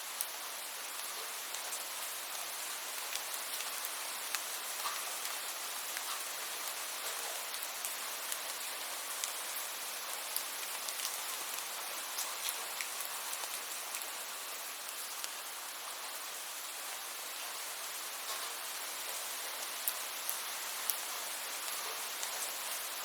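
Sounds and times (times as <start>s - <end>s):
steady rain hiss: 0.0s - 23.0s.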